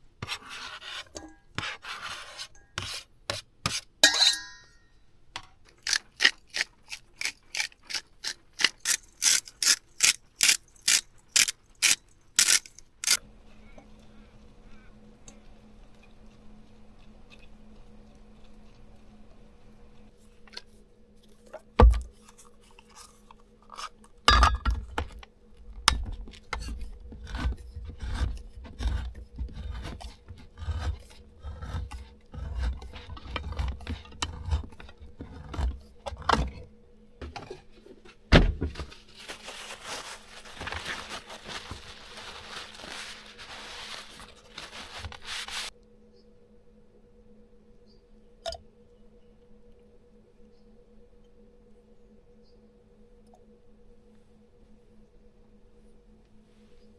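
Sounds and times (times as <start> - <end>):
utensils scraping a bowl: 0.2 - 4.7, 5.8 - 20.7, 26.4 - 36.7.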